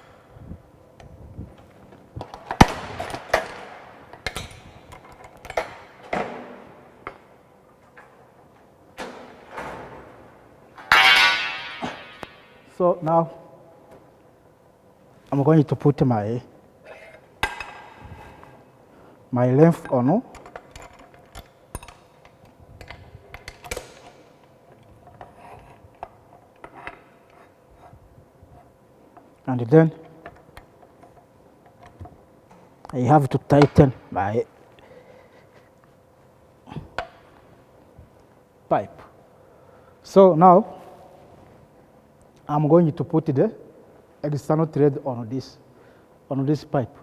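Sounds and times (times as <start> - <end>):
metal pipe clanking: 10.8 - 12.6.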